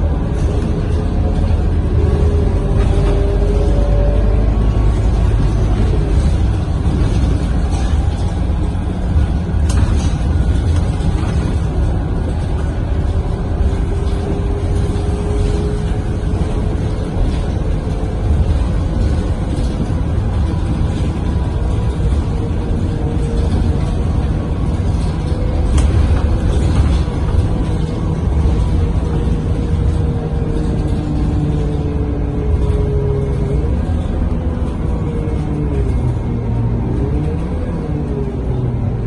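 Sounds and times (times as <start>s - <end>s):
bus engine rumble: 0.0s - 39.0s.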